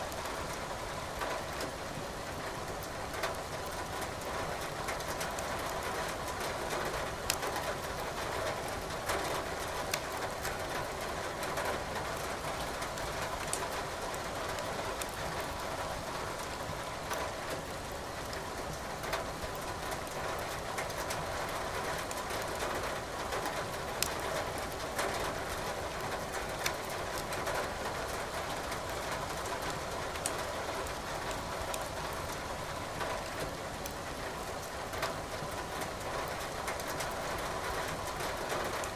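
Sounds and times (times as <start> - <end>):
wood fire crackling: 7.3 - 7.6, 23.9 - 24.7.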